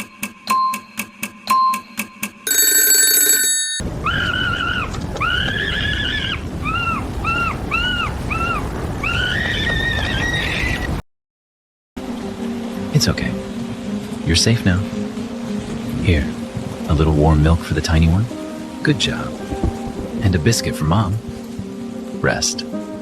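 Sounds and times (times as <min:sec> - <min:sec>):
storm wind rushing: 0:03.8 - 0:11.0, 0:12.0 - 0:23.0.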